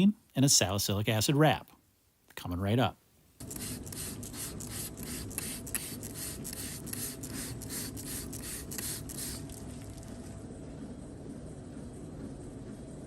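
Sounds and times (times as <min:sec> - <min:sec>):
spray bottle squirting: 0:03.4 - 0:10.2
low hum: 0:03.4 - 0:13.0.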